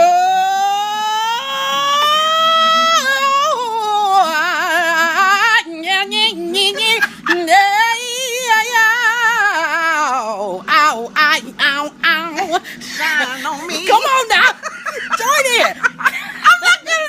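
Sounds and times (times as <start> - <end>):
woman singing gospel song: 0.0 - 17.0.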